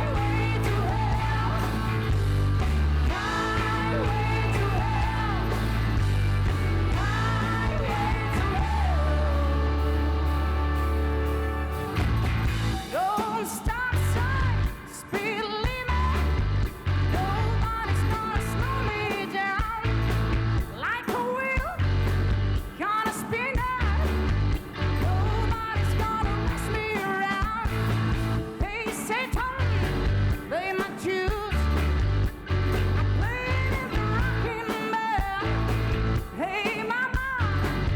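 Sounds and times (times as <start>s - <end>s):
pulsing bass line: 0.0s - 13.0s, 14.0s - 14.8s, 15.9s - 19.0s, 19.8s - 20.8s, 21.8s - 22.6s, 23.8s - 26.9s, 27.7s - 28.5s, 29.6s - 30.4s, 31.5s - 34.6s, 35.4s - 36.3s, 37.4s - 37.9s
live rock band playing: 0.0s - 37.9s.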